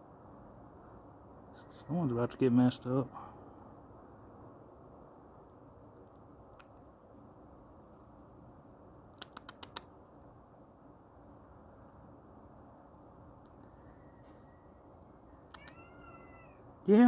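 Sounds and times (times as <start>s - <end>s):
sharp clicks: 9.2s - 9.9s, 15.5s - 15.8s.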